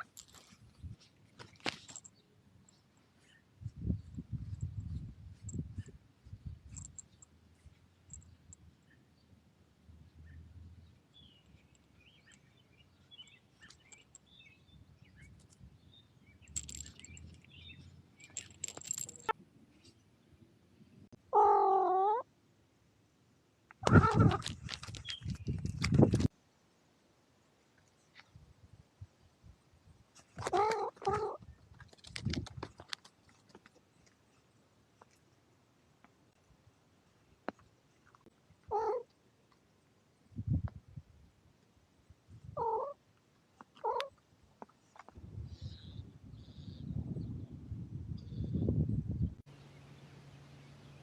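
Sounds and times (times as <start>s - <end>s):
rustling near microphone: 0.0s - 8.8s, 16.4s - 20.0s, 23.8s - 26.3s, 30.0s - 35.4s
birds chirping: 10.0s - 22.2s, 23.8s - 26.3s, 45.5s - 47.5s
cat meowing: 21.3s - 22.2s, 38.7s - 39.0s, 42.6s - 43.0s.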